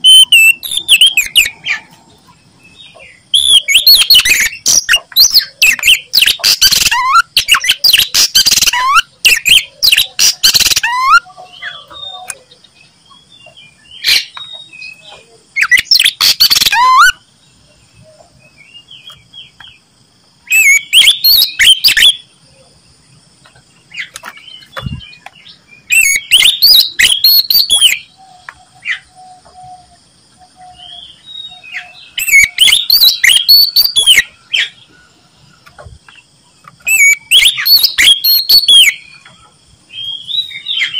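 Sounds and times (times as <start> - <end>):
bird singing whistled phrases: 0.0 - 1.6, 3.3 - 12.4, 14.0 - 17.2, 20.5 - 22.2, 25.8 - 28.4, 29.0 - 34.4, 36.8 - 39.1.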